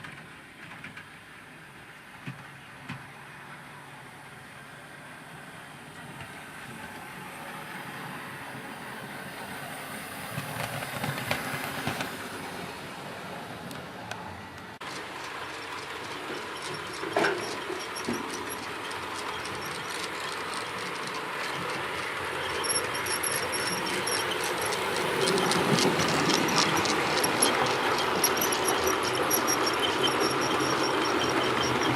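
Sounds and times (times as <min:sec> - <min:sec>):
wheels clicking on track: 0:00.0 - 0:04.4, 0:05.9 - 0:31.9
model train motor whir: 0:14.8 - 0:31.9.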